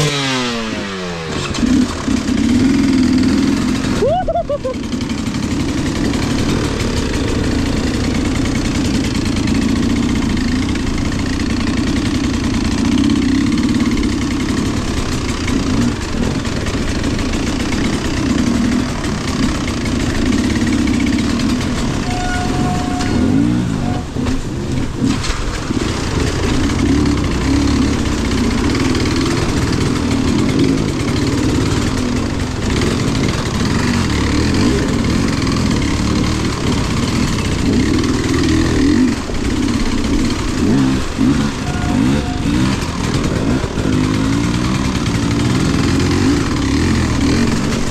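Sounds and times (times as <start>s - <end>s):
off-road vehicle engine under throttle: 0.0s - 47.9s.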